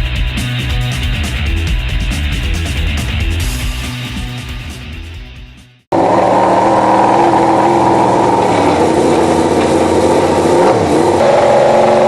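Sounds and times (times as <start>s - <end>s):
motorcycle engine idling: 6.0s - 12.0s.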